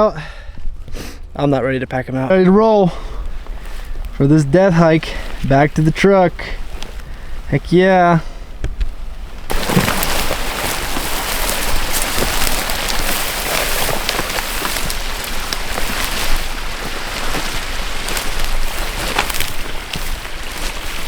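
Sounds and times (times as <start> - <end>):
footsteps rustling and crunching: 0.0 - 21.0
small clicks and crackles: 8.6 - 21.0.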